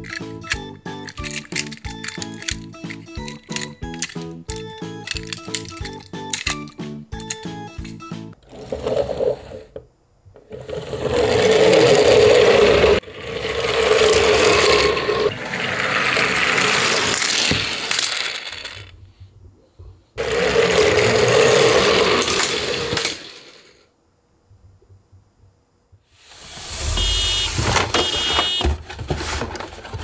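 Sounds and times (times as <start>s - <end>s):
toy trucks rattling on wood: 0.0s - 9.7s, 10.4s - 19.0s, 20.2s - 23.7s.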